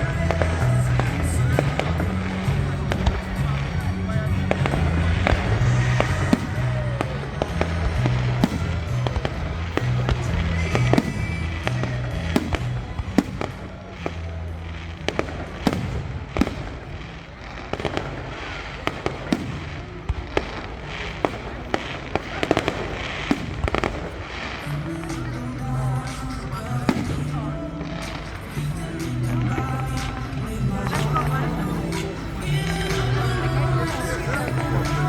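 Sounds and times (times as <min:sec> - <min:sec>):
music with pulsing bass: 0:00.0 - 0:16.5, 0:24.6 - 0:35.0
fireworks bangs and crackles: 0:00.0 - 0:35.0.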